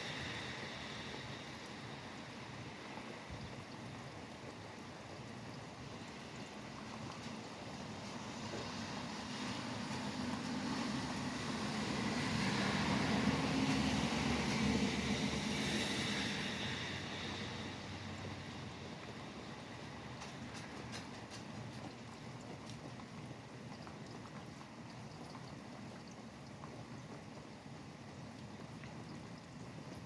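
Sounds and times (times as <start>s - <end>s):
traffic hiss on wet road: 0.0s - 23.5s
steady rain: 0.0s - 30.0s.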